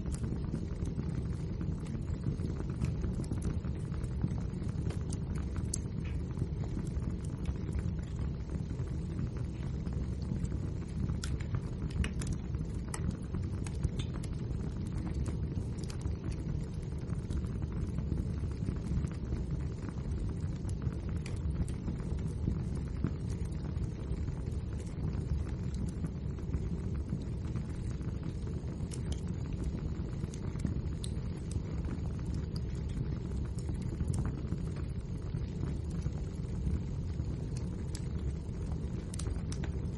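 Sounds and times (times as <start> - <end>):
fire flames rumbling: 0.0 - 39.9
logs crackling and popping: 0.0 - 39.9.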